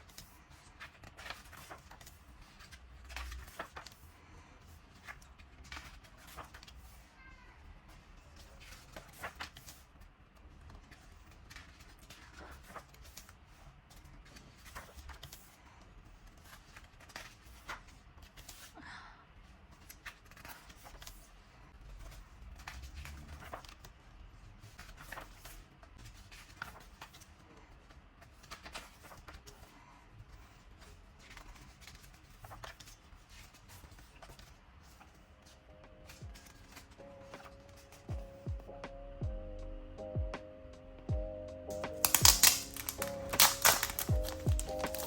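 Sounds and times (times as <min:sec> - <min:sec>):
soft paper rustles: 0:00.0 - 0:38.1, 0:41.9 - 0:45.0
hands handling packaging: 0:41.7 - 0:45.0.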